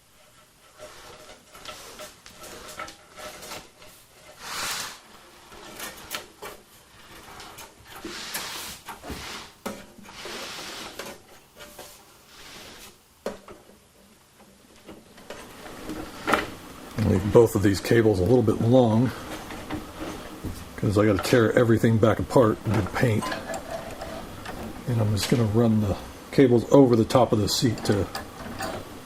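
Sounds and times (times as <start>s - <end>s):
metal parts scraping and clicking: 0.0s - 9.0s, 22.6s - 25.6s, 27.2s - 29.0s.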